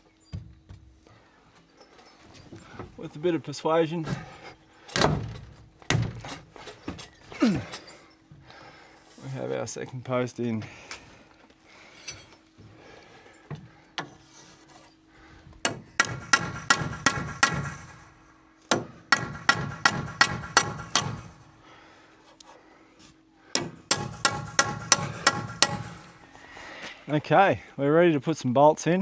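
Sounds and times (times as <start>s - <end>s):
faint steady hum: 0.0s - 29.0s
hammer striking wood: 15.6s - 21.5s, 23.6s - 26.4s.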